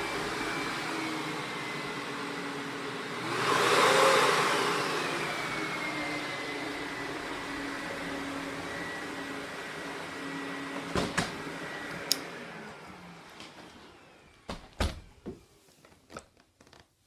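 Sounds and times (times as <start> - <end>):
vacuum cleaner motor whine: 0.0 - 16.2.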